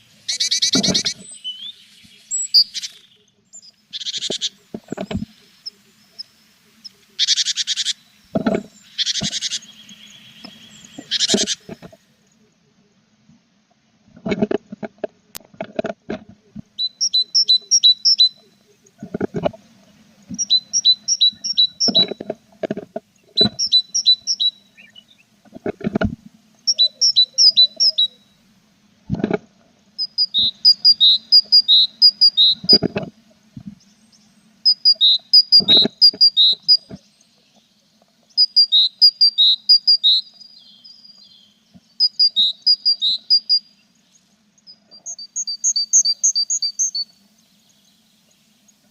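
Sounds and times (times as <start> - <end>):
nestlings begging chirps: 0.0 - 11.9, 16.7 - 19.0, 19.9 - 22.2, 23.1 - 25.4, 26.4 - 28.5, 29.9 - 32.9, 33.8 - 48.9.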